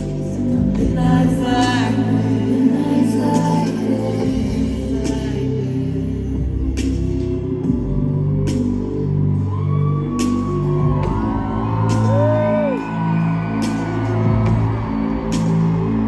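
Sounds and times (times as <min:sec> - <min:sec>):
synth-pop music over sound system: 0:00.0 - 0:16.0
crowd whooping: 0:08.2 - 0:16.0.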